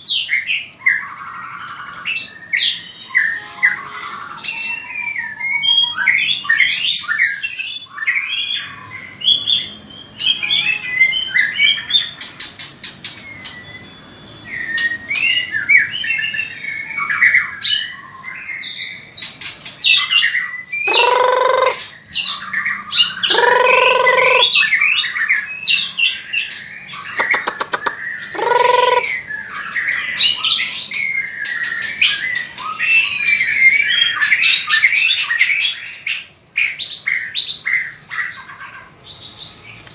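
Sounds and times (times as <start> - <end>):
bird singing varied song: 0.0 - 39.9
harsh drawn-out bird calls: 0.0 - 39.9.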